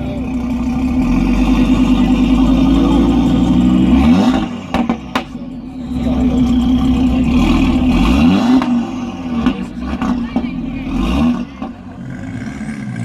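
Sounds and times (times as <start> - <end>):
car engine revving: 0.0 - 13.0
exhaust pops: 0.0 - 13.0.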